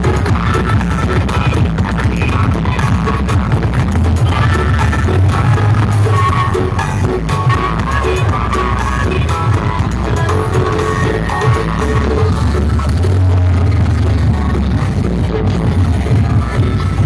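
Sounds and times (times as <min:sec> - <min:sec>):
loud bass-heavy music: 0:00.0 - 0:17.0.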